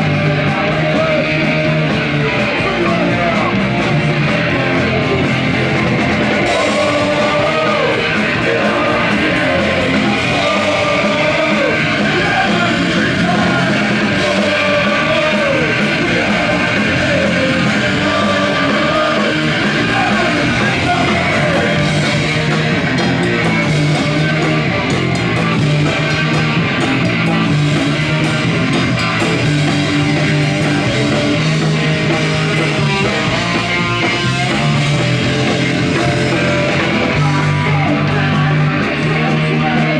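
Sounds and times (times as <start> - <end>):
punk rock band playing: 0.0 - 39.9
person singing: 6.3 - 22.1, 35.9 - 39.9.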